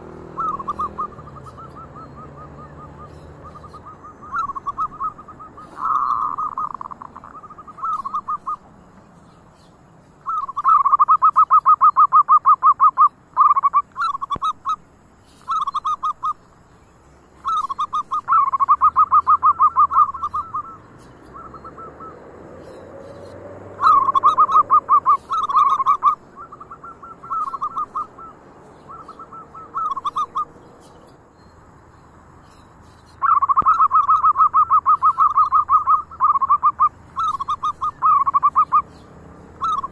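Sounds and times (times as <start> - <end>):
doves cooing: 0.0 - 8.8, 10.2 - 14.8, 15.4 - 16.4, 17.4 - 31.2, 33.1 - 39.9.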